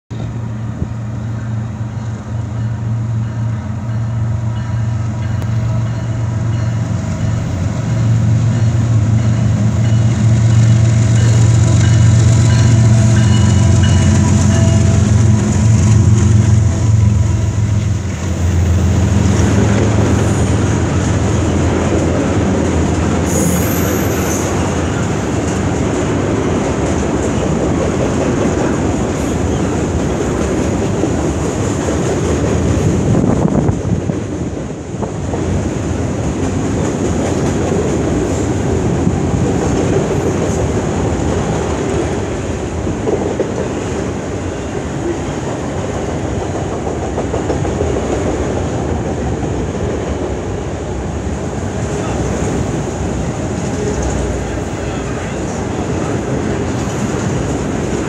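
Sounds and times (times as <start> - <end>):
diesel locomotive engines droning: 0.1 - 58.0
freight cars rumbling and rattling: 5.2 - 58.0
high wheel squeal: 23.2 - 25.0.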